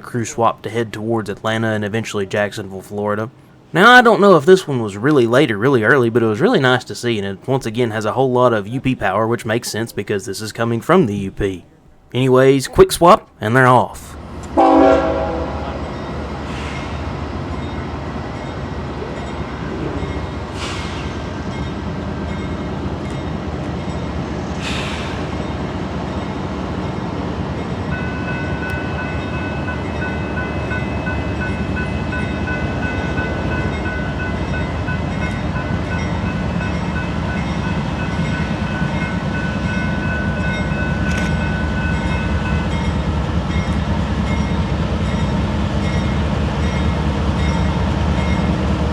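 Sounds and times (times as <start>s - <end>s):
locomotive engines rumbling: 0.0s - 48.9s
train horn blast: 14.6s - 15.8s.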